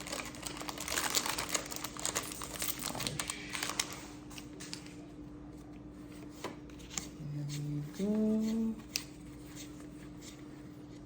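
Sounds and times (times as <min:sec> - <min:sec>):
foil wrapper crinkling: 0:00.0 - 0:04.9
trading cards rustling: 0:00.0 - 0:05.0.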